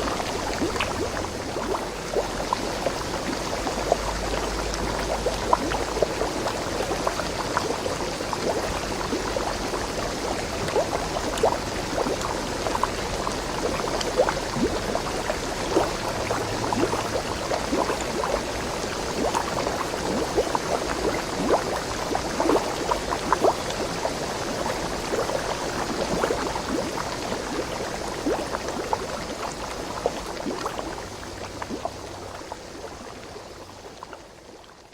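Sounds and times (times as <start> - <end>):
stream babbling over rocks: 0.0 - 34.9.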